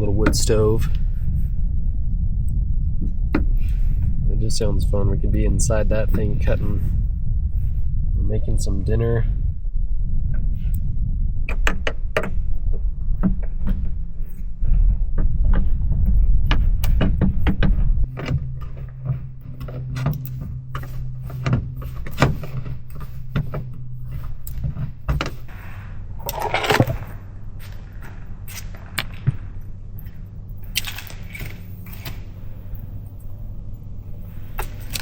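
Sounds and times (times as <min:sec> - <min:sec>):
steady low hum: 0:00.0 - 0:35.0
camp cooking gear clinking: 0:26.2 - 0:27.1.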